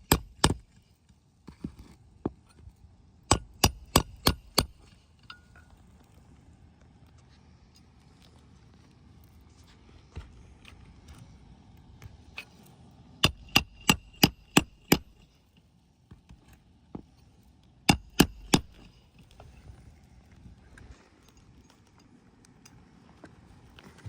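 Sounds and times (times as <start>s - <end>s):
hammer driving roofing nails: 3.3s - 4.8s, 13.2s - 15.3s, 17.9s - 19.0s.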